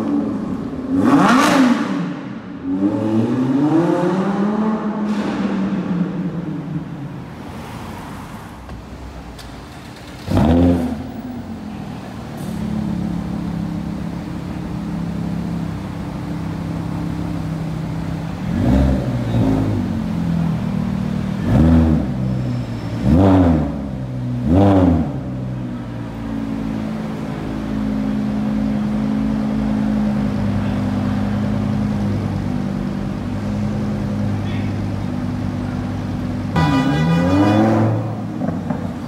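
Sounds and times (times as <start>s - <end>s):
car engine idling and revving: 0.0s - 39.0s.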